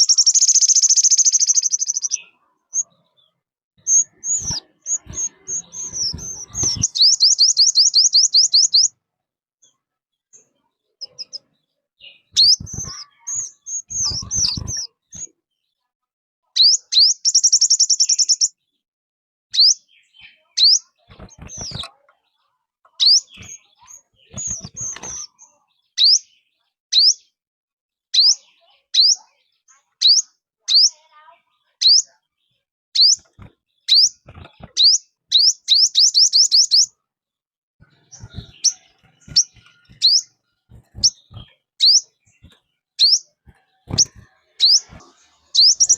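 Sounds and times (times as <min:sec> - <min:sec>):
bird trilled runs: 0:12.3 - 0:15.3, 0:21.1 - 0:21.9, 0:23.0 - 0:25.4, 0:37.8 - 0:45.9.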